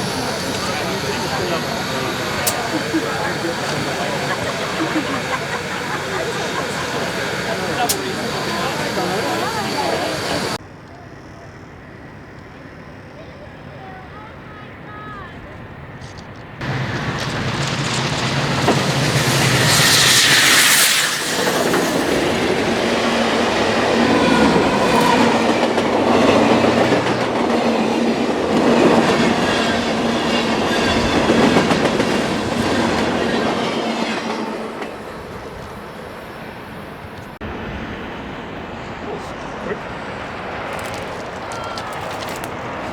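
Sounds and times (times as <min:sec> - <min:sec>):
loud steam hiss: 0:00.0 - 0:10.6, 0:16.6 - 0:37.2
wheels clattering over rail joints: 0:00.0 - 0:10.6, 0:16.0 - 0:33.5, 0:40.4 - 0:42.9
steam train passing: 0:00.0 - 0:42.9.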